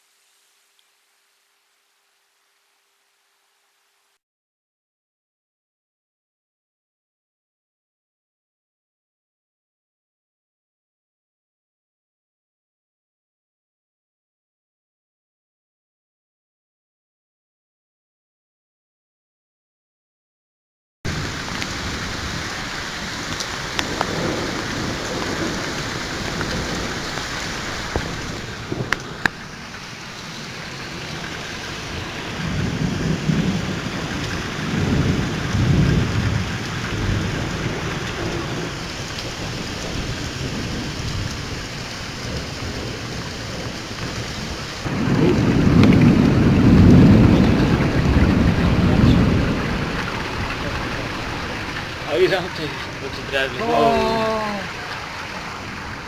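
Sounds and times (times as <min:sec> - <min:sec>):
heavy rain: 0:00.0 - 0:04.2, 0:21.1 - 0:56.0
rolling thunder: 0:21.1 - 0:29.6, 0:30.4 - 0:52.1.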